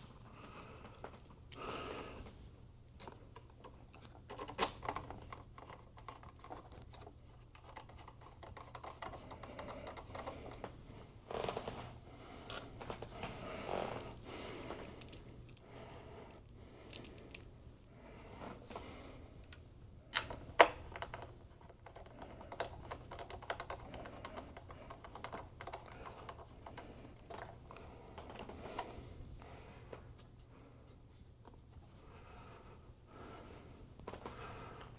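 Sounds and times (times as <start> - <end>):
small tools clicking and tapping: 3.0 - 10.7, 20.2 - 27.6.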